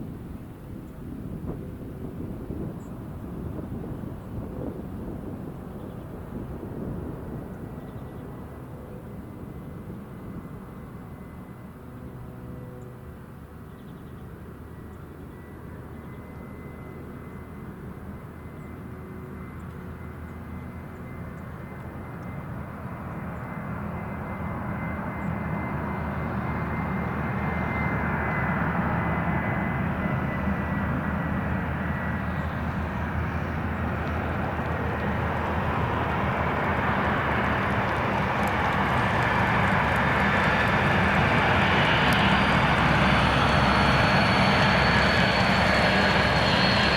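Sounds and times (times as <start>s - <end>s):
jet engines roaring: 17.0s - 46.9s
thin high whine: 39.7s - 46.9s.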